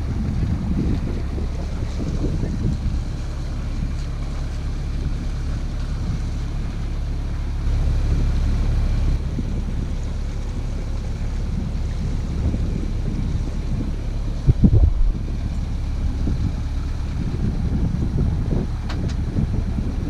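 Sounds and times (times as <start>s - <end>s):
steady low rumble: 0.0s - 20.0s
wind buffeting microphone: 0.0s - 20.0s.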